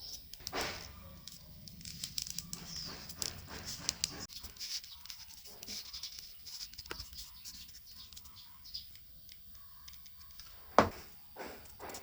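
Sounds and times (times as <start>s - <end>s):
cardboard scratching and rustling: 0.4s - 8.3s.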